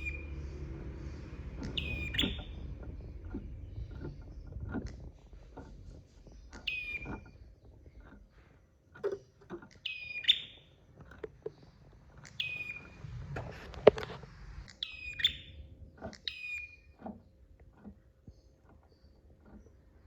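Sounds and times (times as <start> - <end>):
songbird calling: 0.0 - 8.5, 9.1 - 13.0, 14.7 - 17.4.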